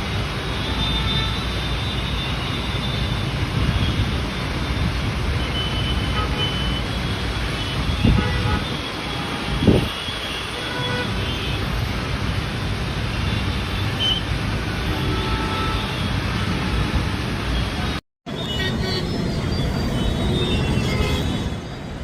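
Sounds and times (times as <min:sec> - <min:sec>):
road traffic engine and tyre noise: 0:00.0 - 0:22.0.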